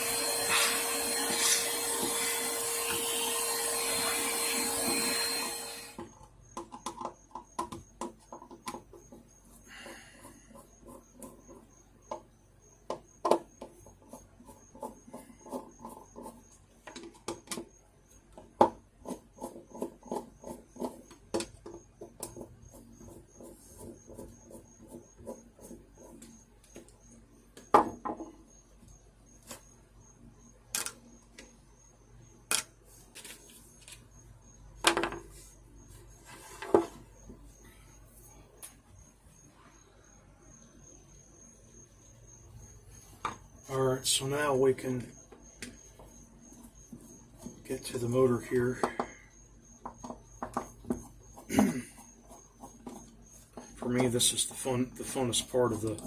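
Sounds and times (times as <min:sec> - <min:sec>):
vacuum cleaner whine: 0:00.0 - 0:06.2
parts clicking and knocking: 0:06.0 - 0:09.3, 0:16.8 - 0:18.8, 0:19.6 - 0:22.6, 0:30.7 - 0:31.6.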